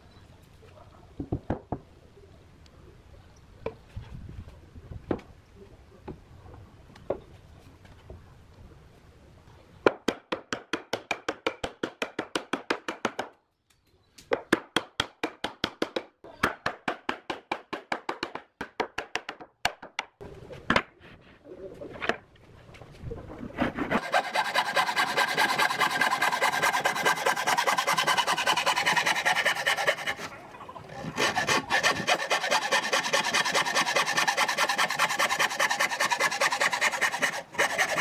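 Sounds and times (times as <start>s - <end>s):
fast strokes on wood: 23.6s - 38.0s.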